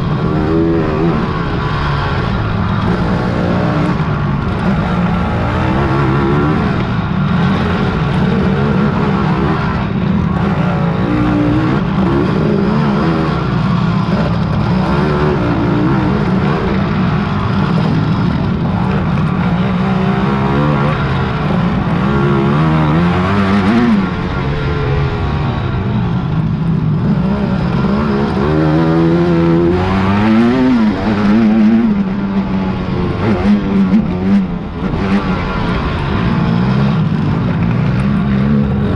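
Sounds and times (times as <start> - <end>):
quad engines revving: 0.0 - 38.9.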